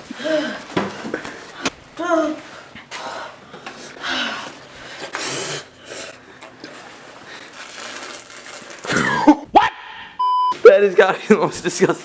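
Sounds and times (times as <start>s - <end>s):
person breathing hard: 2.5s - 6.5s.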